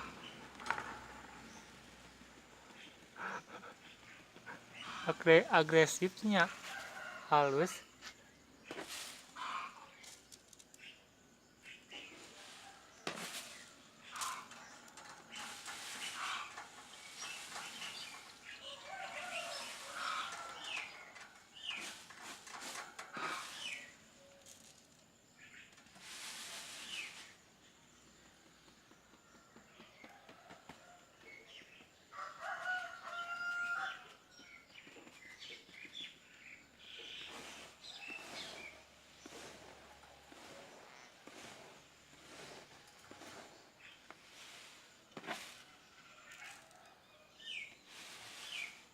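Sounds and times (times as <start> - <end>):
rooster crowing: 32.1 - 34.1.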